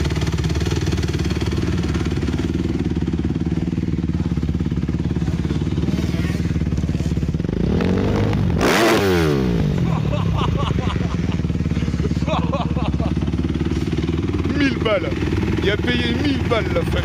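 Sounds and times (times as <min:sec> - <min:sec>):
motocross bike engine idling and revving: 0:00.0 - 0:17.0.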